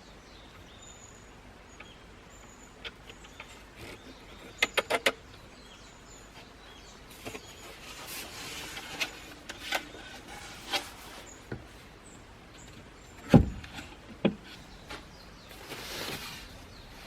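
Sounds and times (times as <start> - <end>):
heavy thump: 13.3 - 13.8.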